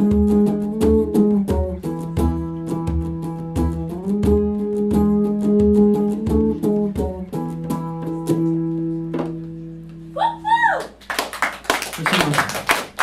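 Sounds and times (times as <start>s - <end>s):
low thumps on the beat: 0.0s - 10.0s
acoustic guitar strumming: 0.0s - 10.2s.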